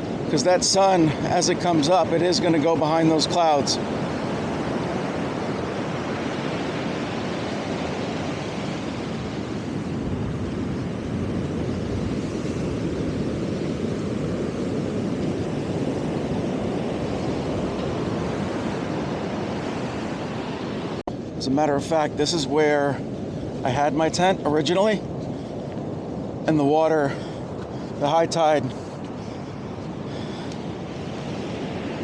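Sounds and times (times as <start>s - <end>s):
surf breaking on beach: 0.0s - 25.1s
wind on microphone: 0.0s - 32.0s.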